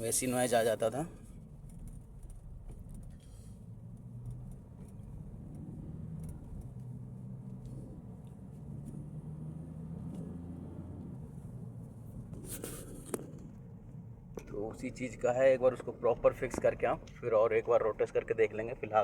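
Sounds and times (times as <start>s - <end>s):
engine droning: 0.8s - 19.0s.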